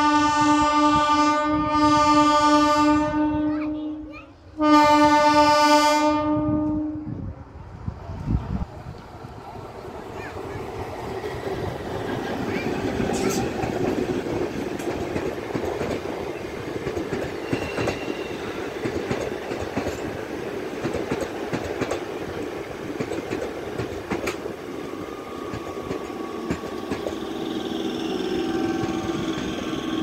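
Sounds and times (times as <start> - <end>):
train rumble: 0.0 - 30.0
train wheels clicking over rail joints: 10.2 - 30.0.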